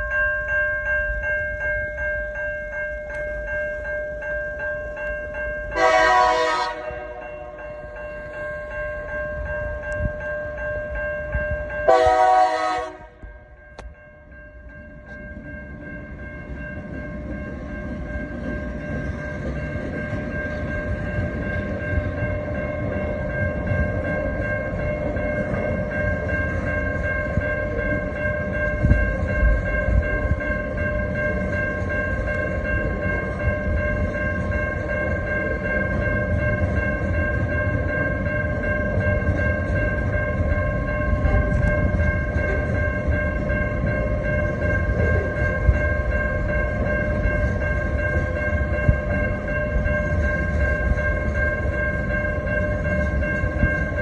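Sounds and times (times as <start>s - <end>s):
diesel freight train rumbling: 0.0s - 54.0s
steady high ringing tones: 0.0s - 54.0s.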